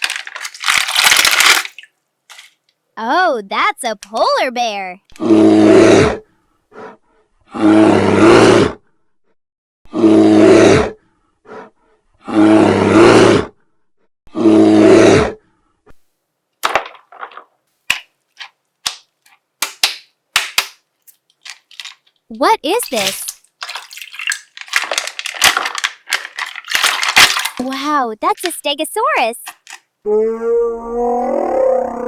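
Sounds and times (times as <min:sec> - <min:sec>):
recorded bear roar: 0:05.1 - 0:06.3, 0:07.5 - 0:08.8, 0:09.9 - 0:13.5, 0:14.3 - 0:15.4, 0:30.1 - 0:32.0.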